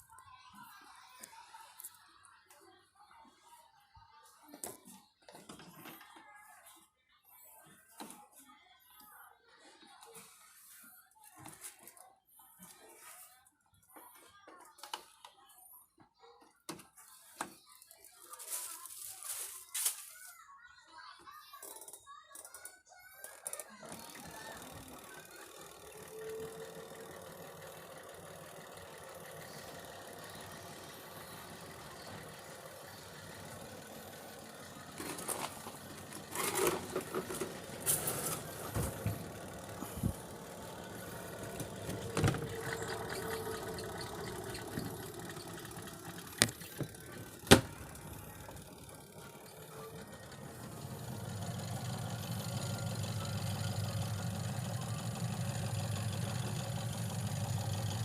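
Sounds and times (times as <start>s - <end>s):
spin dryer motor humming: 23.7s - 58.0s
washing machine handling clatter: 41.4s - 48.0s.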